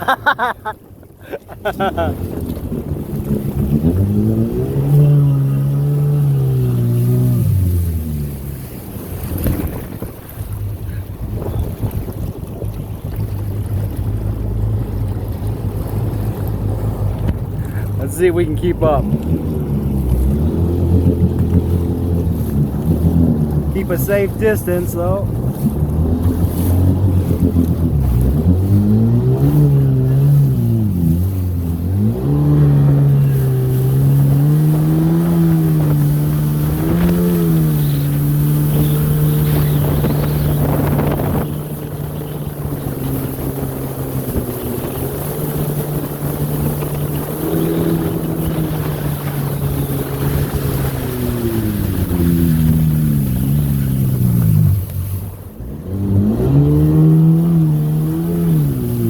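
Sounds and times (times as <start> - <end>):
personal watercraft engine revving: 0.0 - 59.0
wind buffeting microphone: 0.6 - 59.0.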